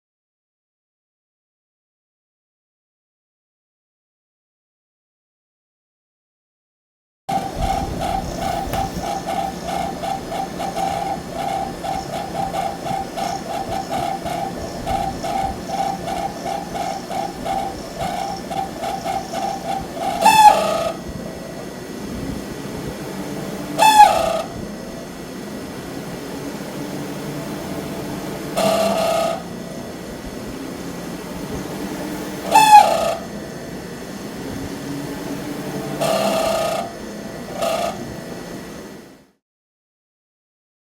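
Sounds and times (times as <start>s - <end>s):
fan motor squealing: 7.3s - 39.2s.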